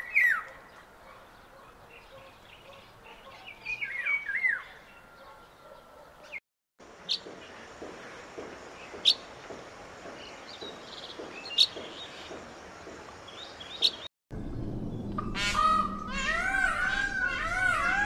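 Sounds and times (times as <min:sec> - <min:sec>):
faint outdoor hiss: 0:06.8 - 0:15.2
peafowl calling: 0:15.2 - 0:18.0.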